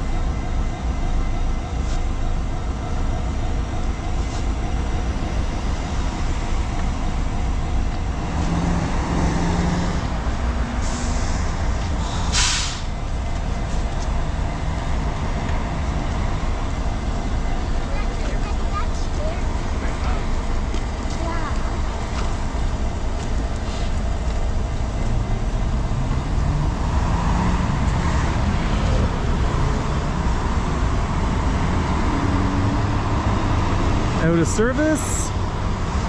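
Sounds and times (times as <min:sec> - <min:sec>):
bus engine rumble: 0:00.0 - 0:36.0
air brakes hissing: 0:10.8 - 0:13.0, 0:23.6 - 0:24.0.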